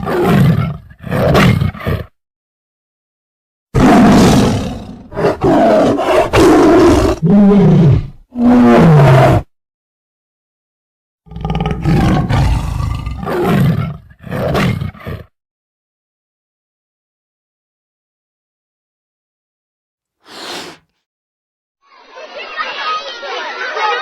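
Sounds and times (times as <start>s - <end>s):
large animal roaring: 3.8s - 9.5s, 11.3s - 15.3s.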